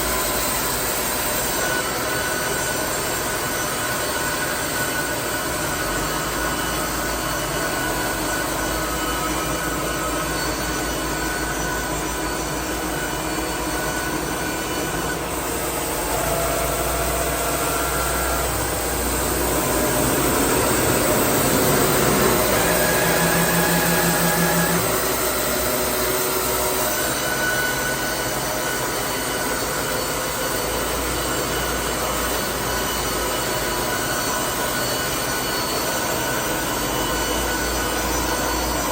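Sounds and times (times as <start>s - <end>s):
band sawmill sawing log: 12.6s - 29.0s.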